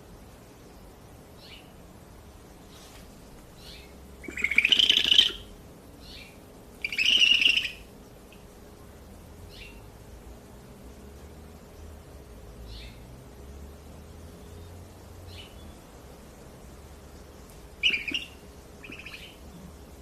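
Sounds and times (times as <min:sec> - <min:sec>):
owl rasping screeches: 0:04.2 - 0:05.5, 0:06.8 - 0:07.8, 0:17.8 - 0:19.4
short high calls: 0:06.8 - 0:07.9, 0:17.8 - 0:19.4.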